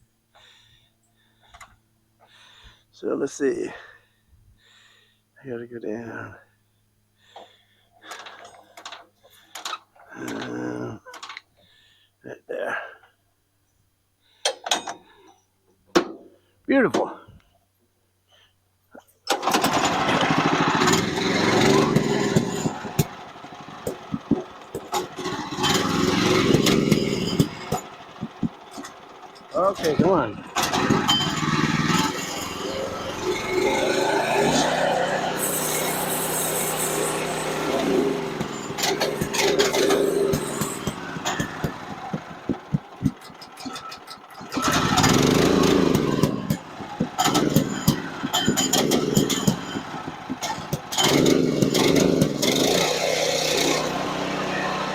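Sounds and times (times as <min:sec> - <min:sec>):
small gasoline engine running: 0:19.3 - 0:54.9
scattered clicks and knocks: 0:20.9 - 0:32.5, 0:37.8 - 0:52.9.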